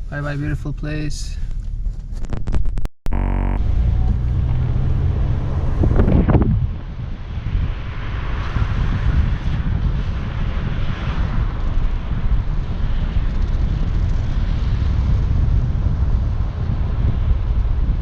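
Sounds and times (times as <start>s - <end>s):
wind buffeting microphone: 3.7s - 18.0s.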